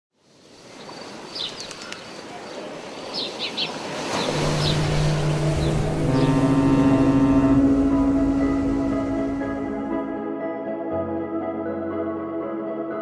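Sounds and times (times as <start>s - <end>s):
birds chirping: 0.7s - 9.4s
ambient music pad: 4.1s - 13.0s.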